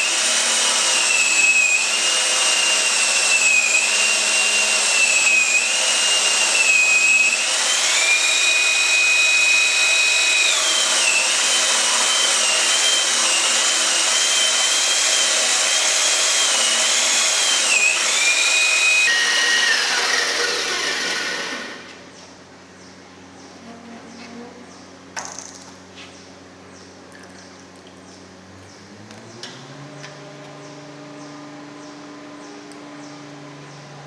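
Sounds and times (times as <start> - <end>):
electric drill motor whining: 0.0 - 22.2.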